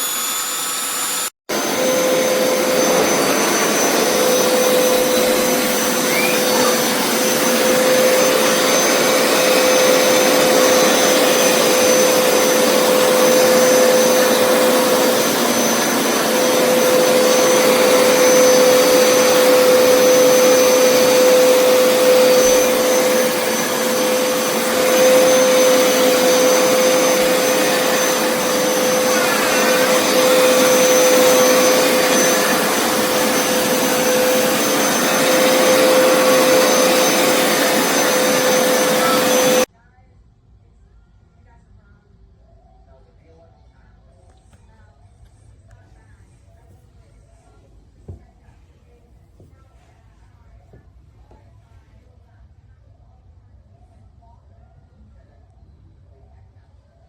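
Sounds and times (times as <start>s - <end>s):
carpet cleaner suction rush: 0.0s - 39.7s
motor whine: 0.0s - 39.7s.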